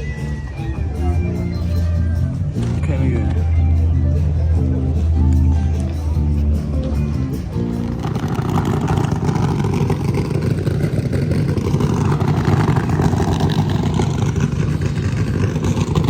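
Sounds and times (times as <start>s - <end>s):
music: 0.0s - 9.2s
faint engine tone: 0.0s - 16.0s
vehicle rumble: 0.0s - 16.0s.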